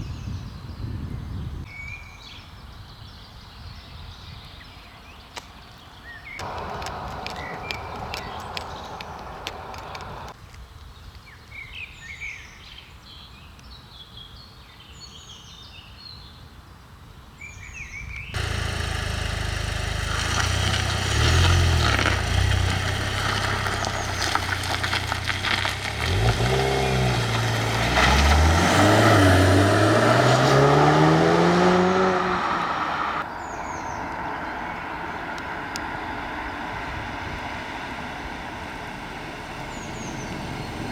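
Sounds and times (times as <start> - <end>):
birds chirping: 4.5 - 10.4, 17.5 - 37.1, 39.0 - 40.9
car engine revving: 6.4 - 10.4, 18.4 - 33.2.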